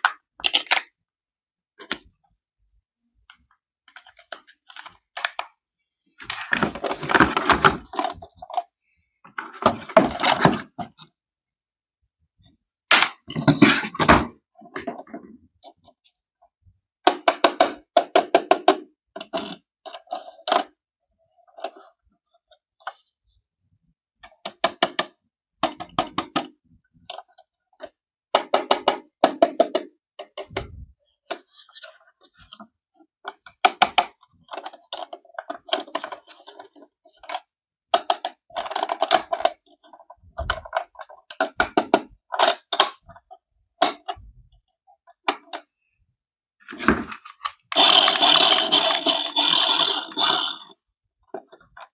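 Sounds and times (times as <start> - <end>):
plastic toy clicks and rattles: 33.6 - 43.0, 47.1 - 50.8.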